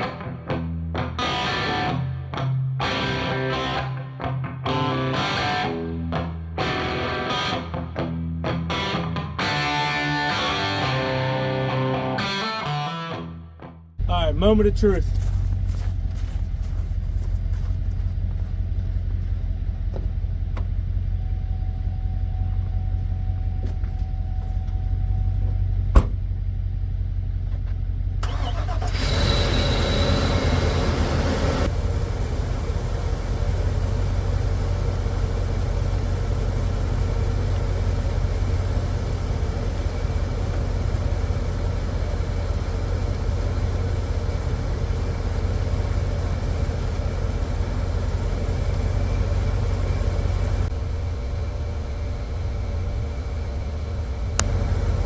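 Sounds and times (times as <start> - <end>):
truck engine cranking and idling: 14.0 - 55.0.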